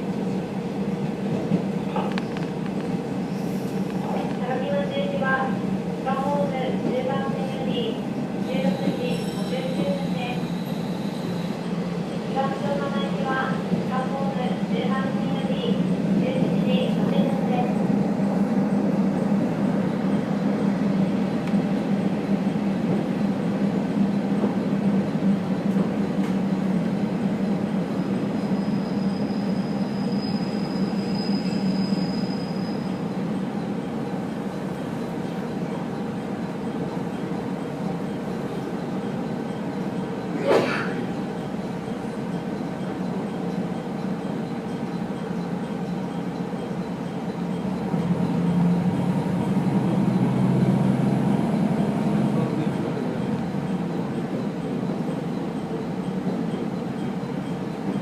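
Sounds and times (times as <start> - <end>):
train carriage running rumble: 0.0 - 58.0
high squeal: 8.8 - 11.6, 28.3 - 33.0.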